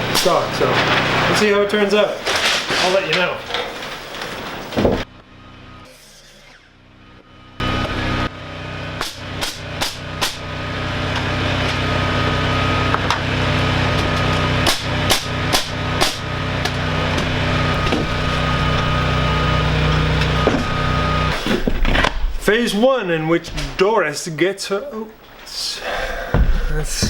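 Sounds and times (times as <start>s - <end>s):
steady engine hum: 5.0s - 21.4s
hammer blows: 7.6s - 22.5s.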